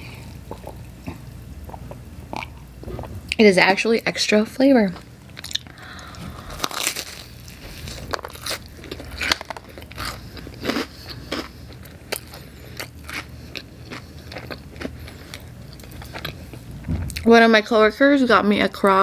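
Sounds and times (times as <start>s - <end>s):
person chewing crunchy food: 0.0s - 3.2s, 5.3s - 17.3s.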